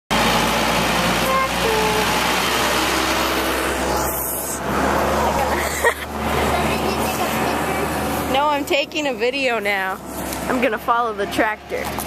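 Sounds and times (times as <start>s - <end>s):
loud rushing noise: 0.1s - 8.7s
tractor engine running: 0.1s - 12.0s.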